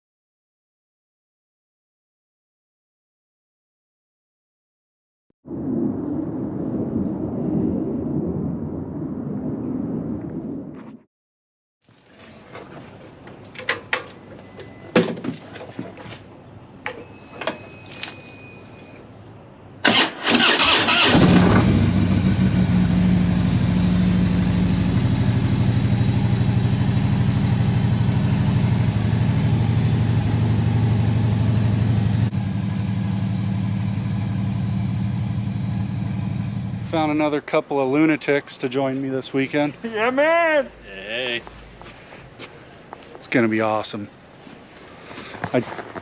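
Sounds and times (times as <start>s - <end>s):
motorcycle engine starting and idling: 19.8s - 36.9s.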